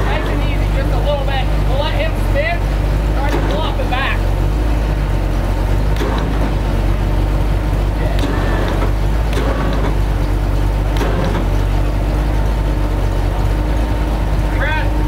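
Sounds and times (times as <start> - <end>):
off-road vehicle engine rumbling: 0.0 - 15.0
sharp knocks: 5.9 - 6.8, 8.0 - 11.7.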